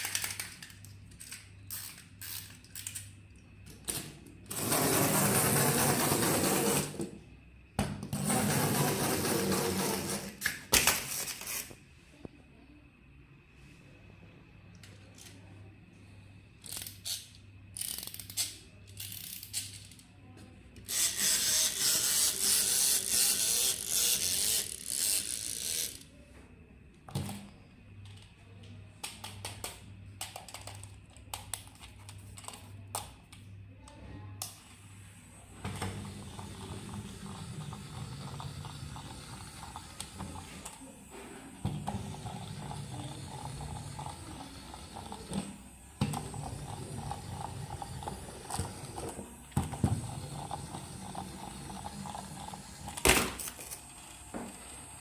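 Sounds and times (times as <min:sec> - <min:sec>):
plastic toy clicking and ratcheting: 0:00.0 - 0:03.1, 0:16.6 - 0:20.0, 0:20.9 - 0:26.0
small geared toy motor running: 0:20.9 - 0:26.0.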